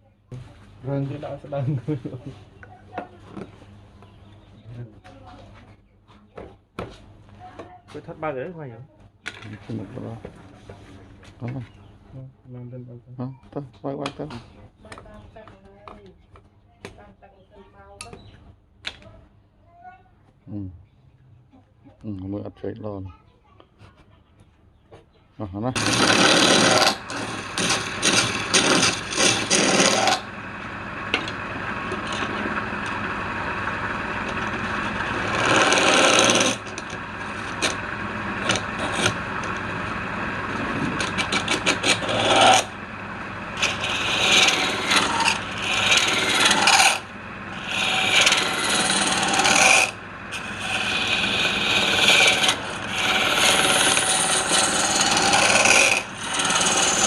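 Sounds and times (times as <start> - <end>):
tool scraping spinning wood: 25.7 - 57.0
woodturning lathe running: 25.8 - 57.0.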